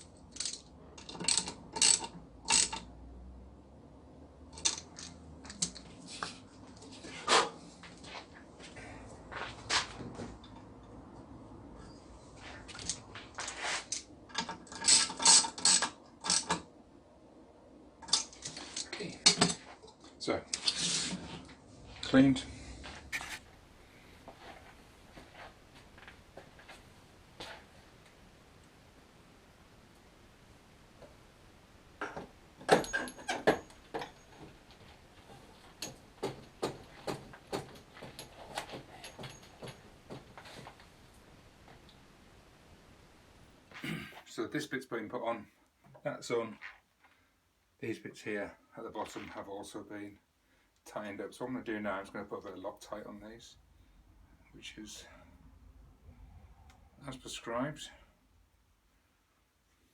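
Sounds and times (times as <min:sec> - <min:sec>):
tool clicking tightening bolts: 0:00.3 - 0:02.8, 0:04.6 - 0:05.8
metallic clicks and clanks: 0:00.3 - 0:02.9, 0:04.6 - 0:05.8, 0:13.9 - 0:16.6, 0:18.0 - 0:20.7, 0:32.0 - 0:34.8.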